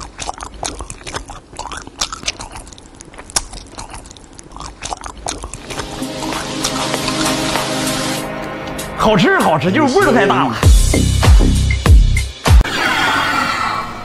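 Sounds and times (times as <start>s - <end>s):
crunchy chewing: 0.0s - 7.9s
background music: 5.6s - 12.6s.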